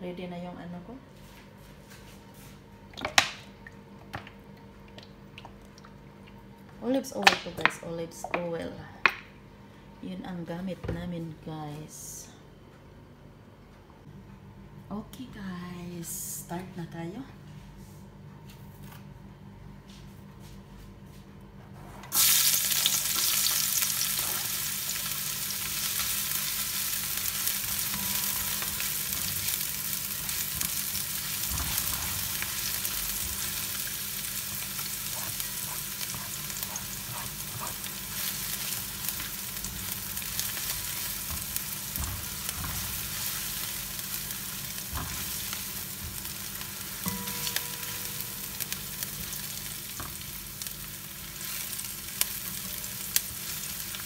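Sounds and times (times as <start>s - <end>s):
onions sizzling in hot oil: 22.1s - 54.0s
spatula stirring: 34.6s - 50.3s.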